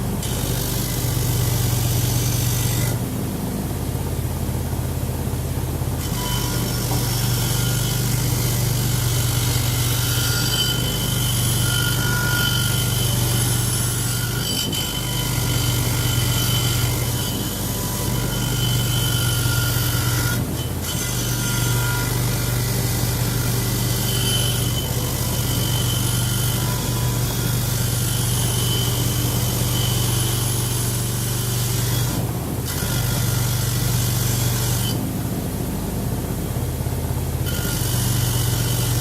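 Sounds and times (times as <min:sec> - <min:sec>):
power tool motor hum: 0:06.0 - 0:35.0, 0:37.4 - 0:39.0.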